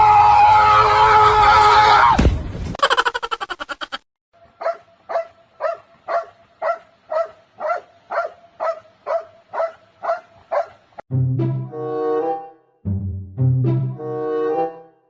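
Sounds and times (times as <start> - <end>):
dog barking: 4.6 - 10.8.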